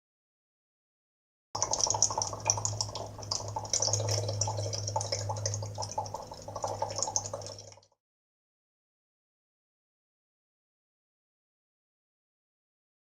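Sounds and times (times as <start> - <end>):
steady low hum: 1.6 - 7.9.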